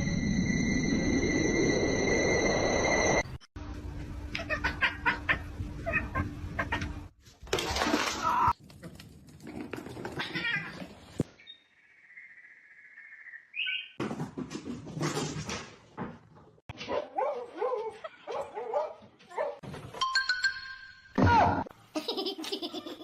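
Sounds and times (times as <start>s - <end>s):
cats meowing: 10.2s - 10.9s.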